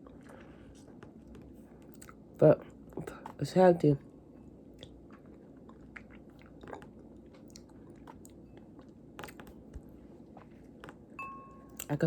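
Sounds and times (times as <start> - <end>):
chewing soft fruit: 0.0 - 12.0.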